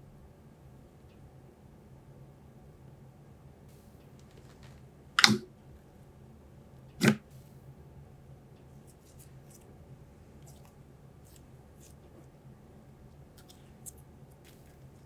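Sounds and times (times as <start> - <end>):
slime popping: 5.2 - 5.4
slime crackling: 13.4 - 15.0.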